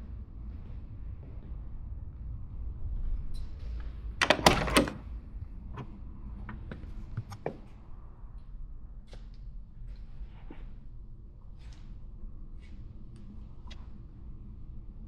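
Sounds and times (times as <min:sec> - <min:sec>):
car door latch clunking: 0:04.2 - 0:05.0.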